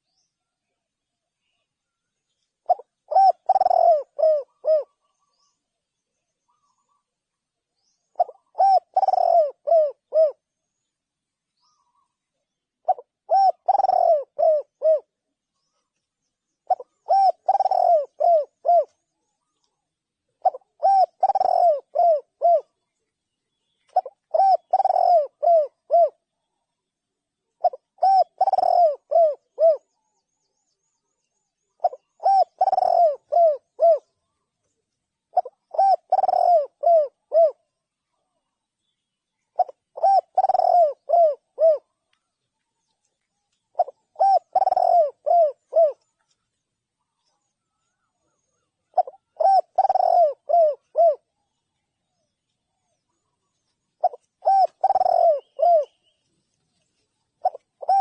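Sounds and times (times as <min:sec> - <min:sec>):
dove cooing: 0:02.6 - 0:05.6, 0:08.0 - 0:10.5, 0:12.8 - 0:15.9, 0:16.6 - 0:19.7, 0:20.4 - 0:22.8, 0:23.8 - 0:26.3, 0:27.6 - 0:30.0, 0:31.6 - 0:34.5, 0:35.3 - 0:38.4, 0:39.4 - 0:42.4, 0:43.7 - 0:46.4, 0:47.0 - 0:51.4, 0:52.0 - 0:56.2, 0:56.9 - 0:58.0.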